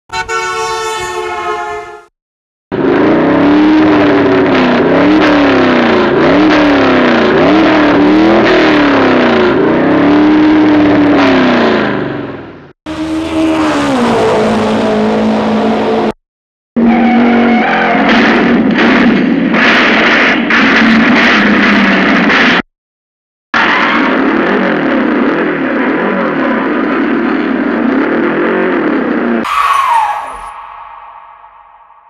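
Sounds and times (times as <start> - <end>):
car engine revving: 2.7 - 12.3, 12.9 - 16.2.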